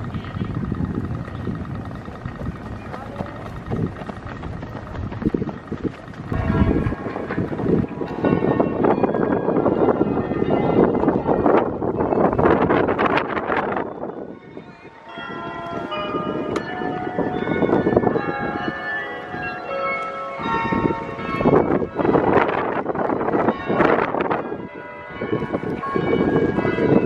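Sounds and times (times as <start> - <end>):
steady rushing background noise: 0.0 - 14.2
storm wind gusting: 0.0 - 18.8, 20.4 - 27.0
church bells ringing: 6.0 - 27.0.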